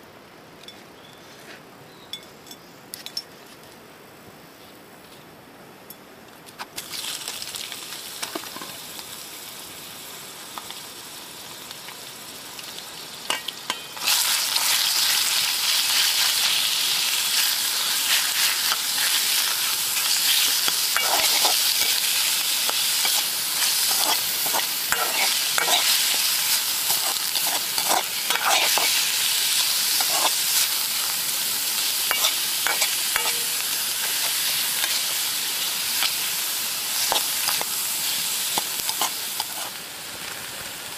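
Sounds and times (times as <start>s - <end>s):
food sizzling in a wok: 6.8s - 40.9s
utensil scraping metal wok: 13.3s - 39.8s.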